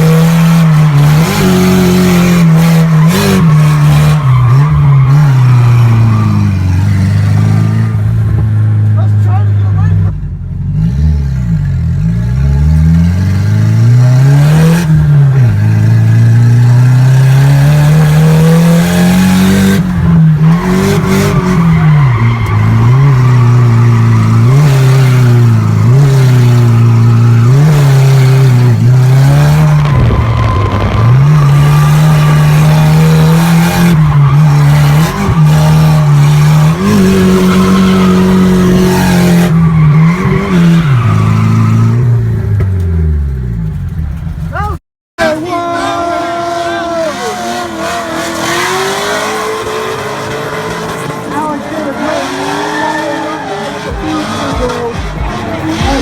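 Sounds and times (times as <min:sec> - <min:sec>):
car engine revving: 0:00.0 - 0:56.0
tyres squealing: 0:18.1 - 0:42.0, 0:44.5 - 0:56.0.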